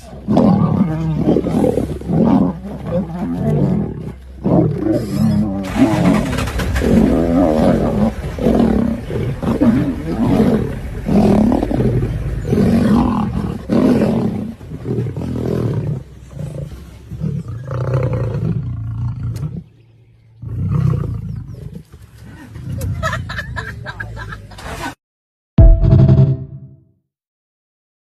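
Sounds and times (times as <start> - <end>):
lion roaring: 0.0 - 19.7.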